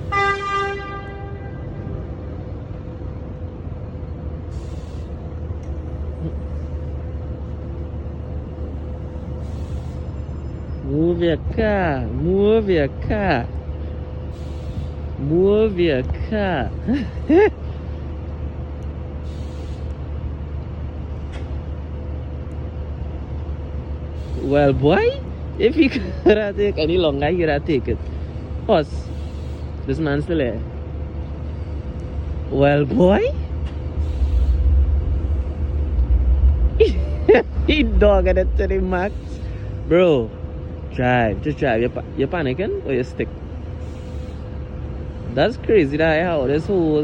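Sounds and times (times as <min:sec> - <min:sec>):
vehicle horn honking: 0:00.0 - 0:01.8
idling traffic rumble: 0:00.0 - 0:47.0
short hiss: 0:04.5 - 0:05.1
faint steady hum: 0:21.8 - 0:47.0.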